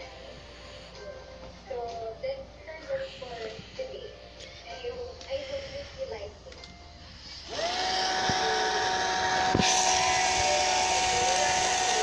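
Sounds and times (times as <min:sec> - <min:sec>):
small electric motor whining: 0:07.4 - 0:12.0.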